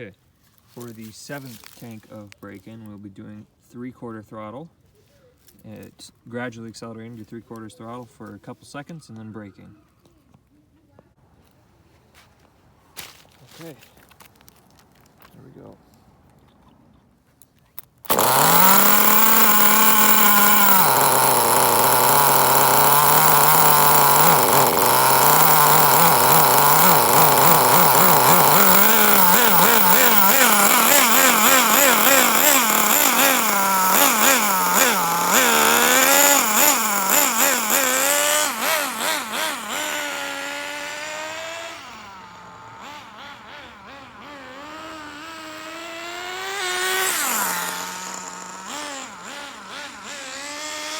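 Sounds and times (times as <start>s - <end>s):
nitro engine revving: 18.1s - 50.9s.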